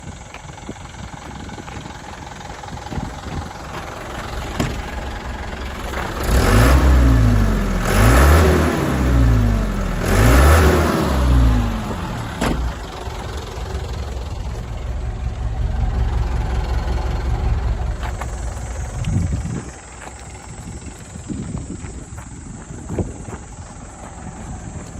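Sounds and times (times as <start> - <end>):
diesel engine idling and revving: 0.0 - 24.9.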